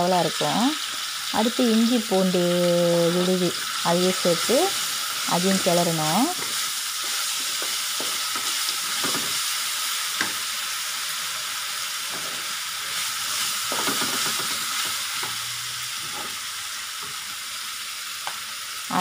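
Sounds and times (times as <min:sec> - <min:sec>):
food sizzling in hot oil: 0:00.0 - 0:19.0
spatula scraping and stirring: 0:04.7 - 0:09.5, 0:12.0 - 0:15.3, 0:16.0 - 0:16.4.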